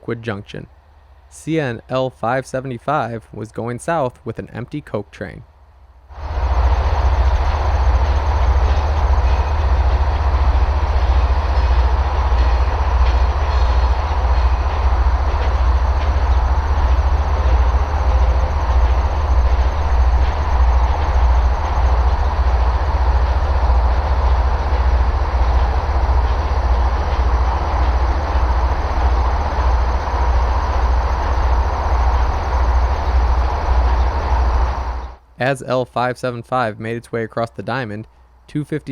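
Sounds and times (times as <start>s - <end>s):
freight train wheels clattering: 6.2s - 35.0s.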